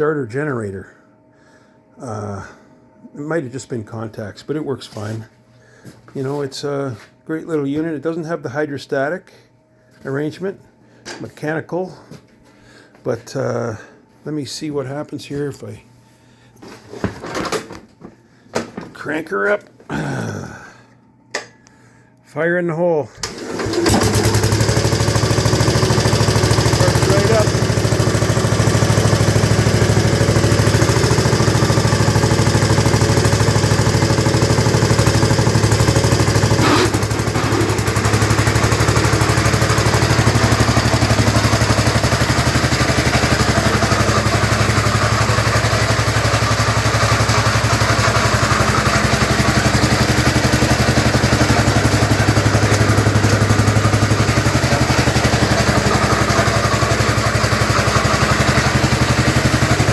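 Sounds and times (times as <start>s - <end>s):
garden tractor engine running: 23.2s - 59.9s.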